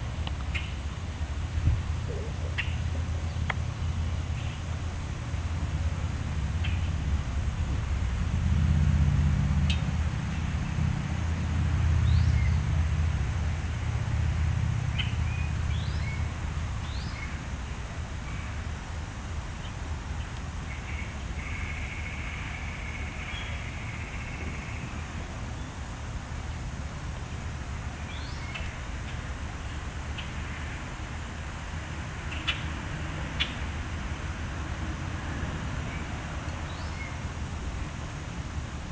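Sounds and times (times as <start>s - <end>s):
songbirds chirping: 0.0s - 5.4s, 12.0s - 12.6s, 14.8s - 31.3s, 32.1s - 33.7s, 35.5s - 38.1s.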